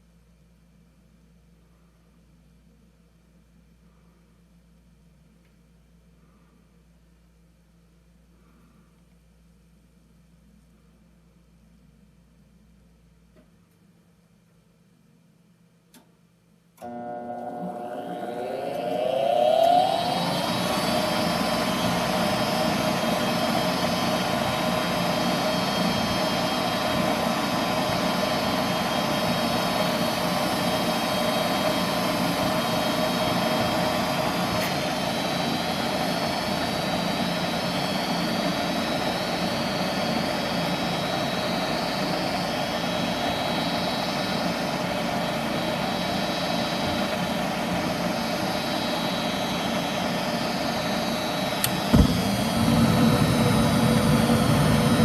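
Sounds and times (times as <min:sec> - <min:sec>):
furnace fan motor whirring: 0:16.8 - 0:55.0.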